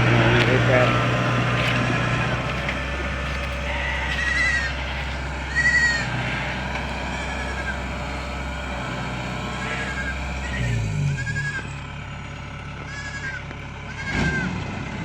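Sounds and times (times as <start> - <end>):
steady low hum: 0.0 - 12.4
animal high-pitched cries: 1.6 - 7.9, 9.6 - 11.8, 12.9 - 14.5.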